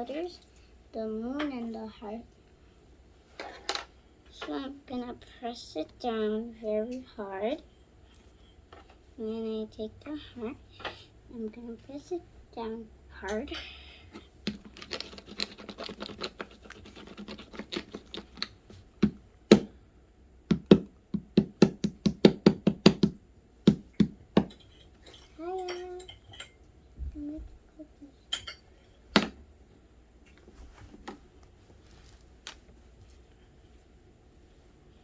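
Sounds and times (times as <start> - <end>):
crackly rubbing on dough: 14.2 - 19.2
cookie cutter knocking on table: 20.5 - 24.5.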